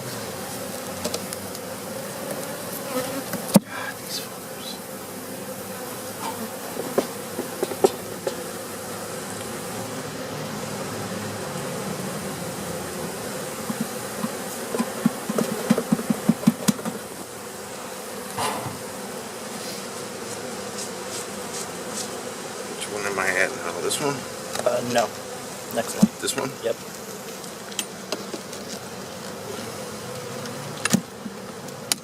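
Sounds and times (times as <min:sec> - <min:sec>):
bees buzzing: 0:00.0 - 0:32.0
knocks and clicks on hive: 0:06.2 - 0:08.5, 0:13.6 - 0:17.1, 0:25.9 - 0:29.4, 0:30.2 - 0:32.0.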